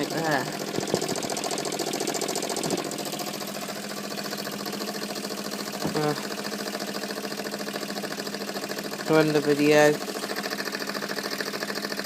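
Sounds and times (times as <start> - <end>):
toy steam engine chuffing: 0.0 - 12.0.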